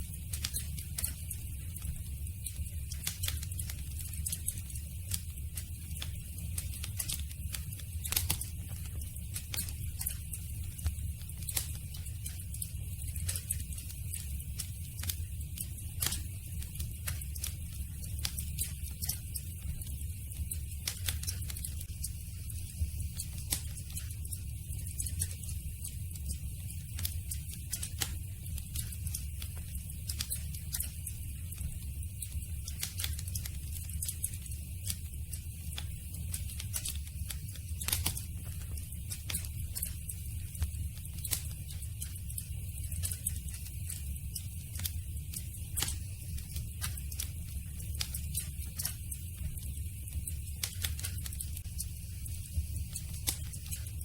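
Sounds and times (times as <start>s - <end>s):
low rumble of flames: 0.0s - 54.0s
campfire crackling and popping: 0.2s - 21.9s, 26.1s - 42.2s, 43.0s - 51.6s
campfire crackling: 9.4s - 19.9s, 27.0s - 30.9s.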